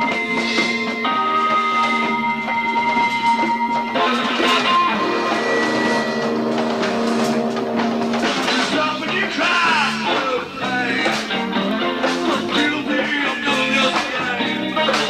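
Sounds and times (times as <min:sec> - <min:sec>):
bass guitar: 0:00.0 - 0:15.0
drum kit: 0:00.0 - 0:15.0
electric guitar: 0:00.0 - 0:15.0.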